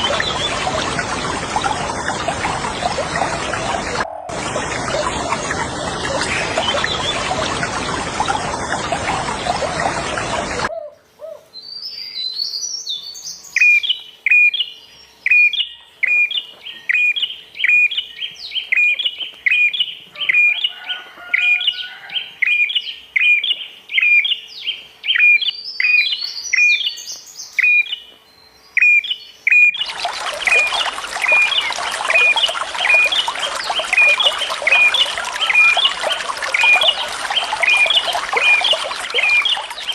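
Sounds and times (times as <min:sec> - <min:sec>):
rushing water: 0:00.0 - 0:10.7, 0:29.8 - 0:39.9
songbird chirping: 0:04.8 - 0:39.9.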